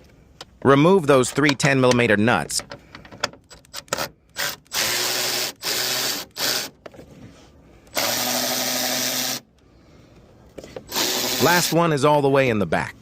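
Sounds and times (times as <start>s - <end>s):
power drill whining: 3.8s - 6.8s, 7.9s - 9.4s, 10.9s - 11.8s.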